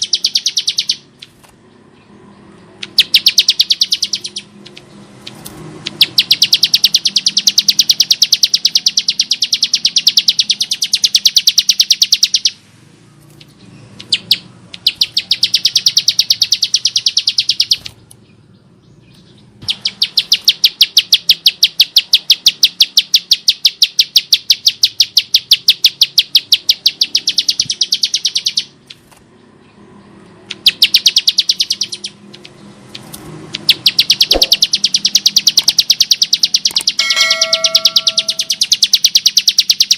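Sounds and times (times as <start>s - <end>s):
bird giving rapid clicking call: 0.0s - 1.6s, 2.8s - 12.6s, 13.2s - 18.2s, 19.1s - 29.2s, 30.4s - 37.0s, 37.7s - 39.9s.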